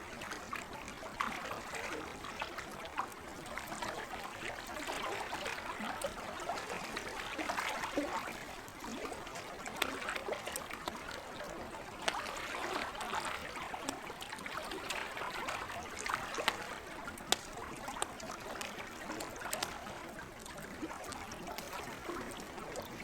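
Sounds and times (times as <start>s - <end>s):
lake water trickling: 0.0s - 23.0s
campfire crackling and popping: 7.0s - 23.0s.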